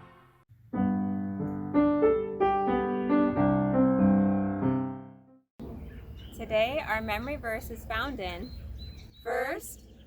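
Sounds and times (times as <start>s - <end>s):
piano playing children's song: 0.0s - 5.4s.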